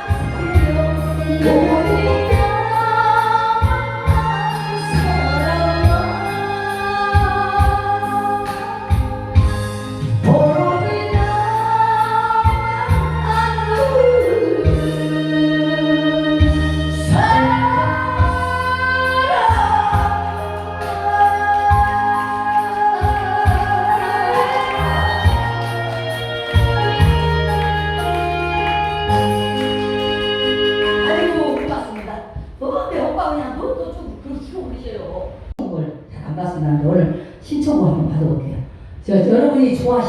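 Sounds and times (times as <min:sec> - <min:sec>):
person singing: 0:00.0 - 0:31.6
amplified backing track with bass: 0:00.0 - 0:31.9.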